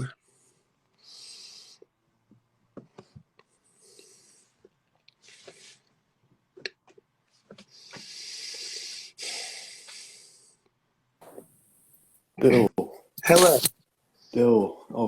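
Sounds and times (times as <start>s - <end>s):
breathy puffs into microphone: 13.2s - 13.7s
sharp clicks: 13.2s - 13.7s.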